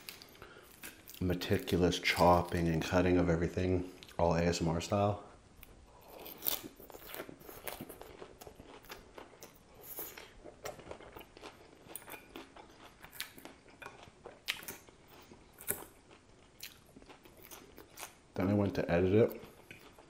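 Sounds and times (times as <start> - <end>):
person chewing crisp lettuce: 5.6 - 18.3, 19.2 - 20.0.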